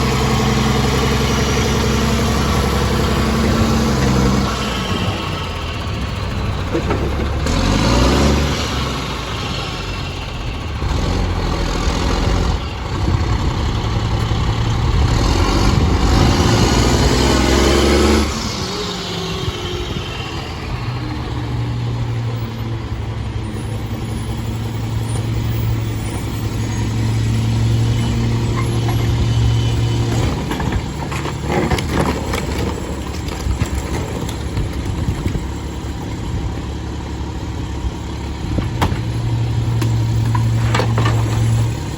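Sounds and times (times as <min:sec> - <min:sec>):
garbage truck diesel engine running: 0:00.0 - 0:41.9
knocks and clatters: 0:06.5 - 0:07.8, 0:27.8 - 0:36.2, 0:38.5 - 0:41.9.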